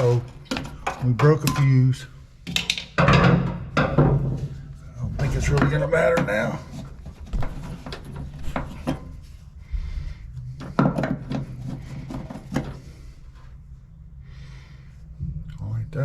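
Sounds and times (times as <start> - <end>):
tools knocking and scraping: 0.0 - 9.4, 10.4 - 13.1.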